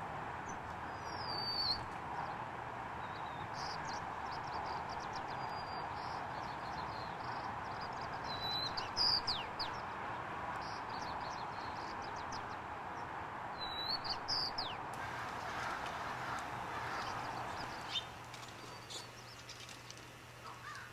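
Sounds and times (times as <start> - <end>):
small birds chirping: 3.0 - 20.9
steady background hiss: 14.9 - 20.9.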